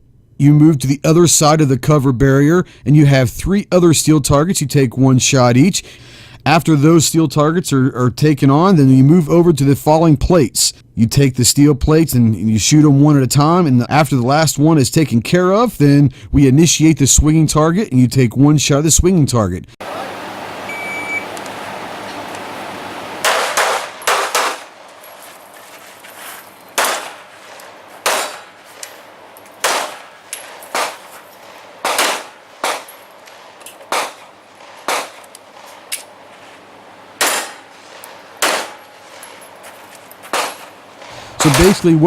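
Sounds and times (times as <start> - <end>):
steel targets clanging: 19.8 - 42.0
shot timer beep: 20.7 - 21.4
handgun shots: 23.2 - 25.1, 26.7 - 36.2, 37.2 - 41.9.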